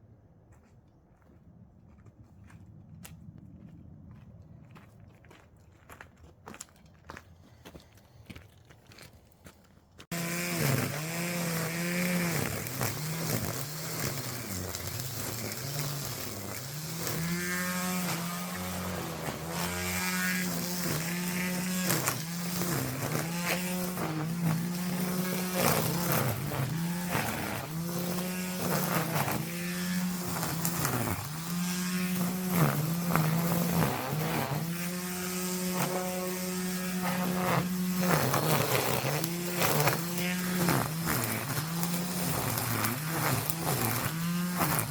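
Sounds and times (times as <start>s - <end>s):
brush cutter engine cutting grass: 10.1s - 44.9s.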